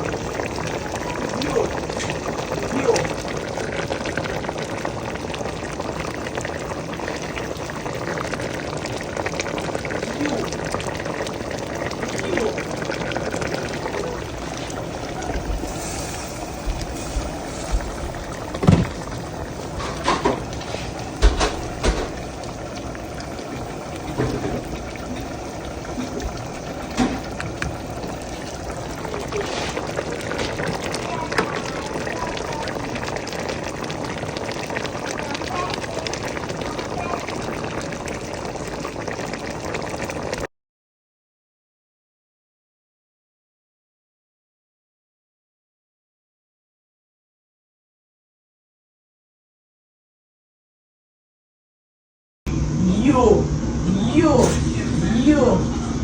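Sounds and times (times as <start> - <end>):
pot bubbling at a boil: 0.0 - 40.5.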